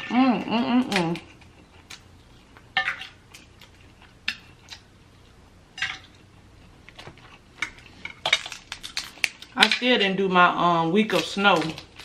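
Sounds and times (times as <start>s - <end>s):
crab shell cracking: 6.8s - 9.8s.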